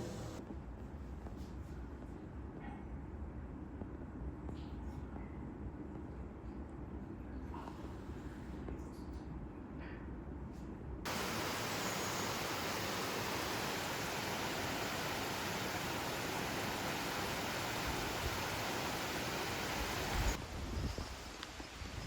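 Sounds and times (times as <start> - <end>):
steady rushing noise: 11.1 - 20.7.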